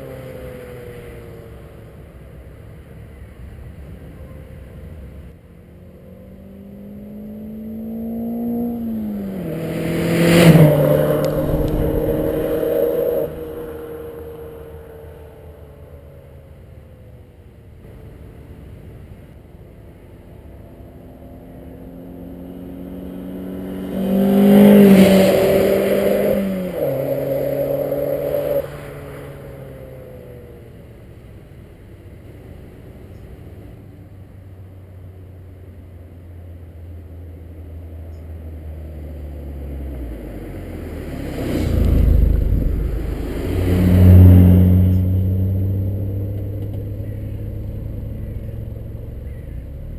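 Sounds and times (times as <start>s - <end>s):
car accelerating past: 5.7s - 16.9s, 20.3s - 30.9s, 38.4s - 49.9s.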